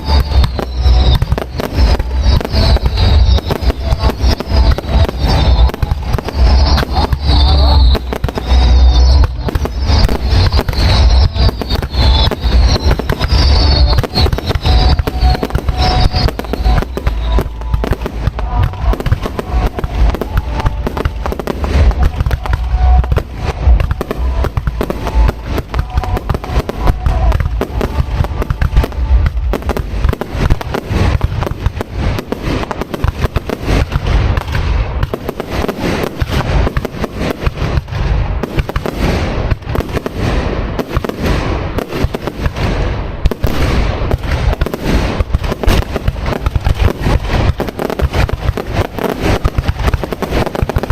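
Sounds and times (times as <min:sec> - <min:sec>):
high falling tones: 0:00.0 - 0:34.9
fireworks booming and crackling: 0:00.0 - 0:50.9.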